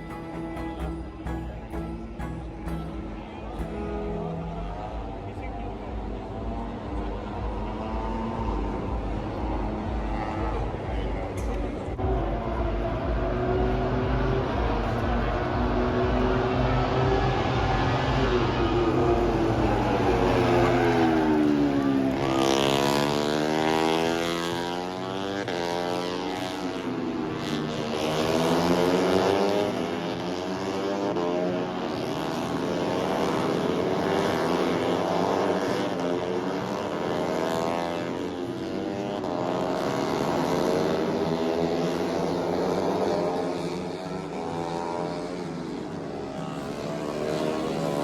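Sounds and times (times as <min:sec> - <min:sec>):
racing motorcycles passing: 0:00.0 - 0:48.0.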